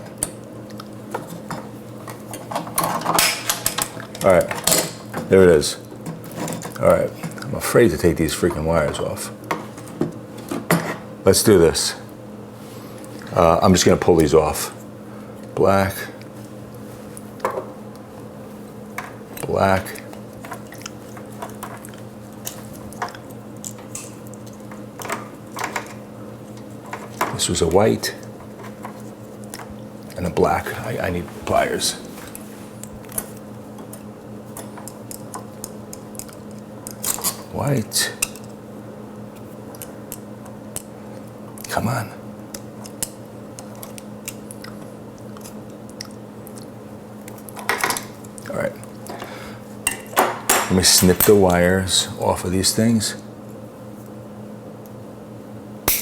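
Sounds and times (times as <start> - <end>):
steady low hum: 0.0 - 56.0
pliers clicking on wire connectors: 34.8 - 37.4.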